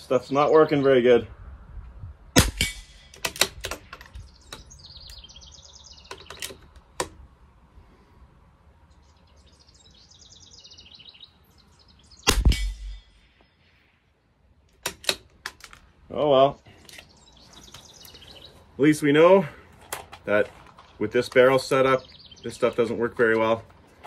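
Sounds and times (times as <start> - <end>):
bird chirping: 3.8 - 7.0, 8.8 - 14.4, 16.1 - 19.5, 20.6 - 23.6.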